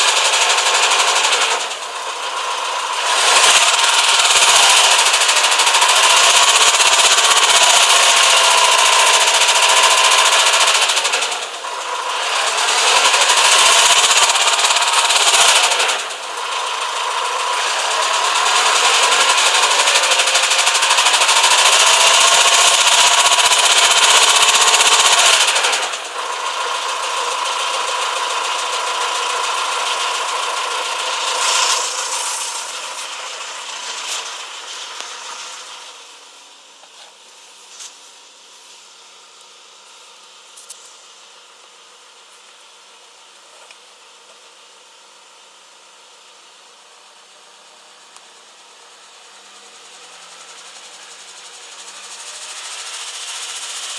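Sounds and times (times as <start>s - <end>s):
diesel engine metallic knocking: 0.0s - 36.0s.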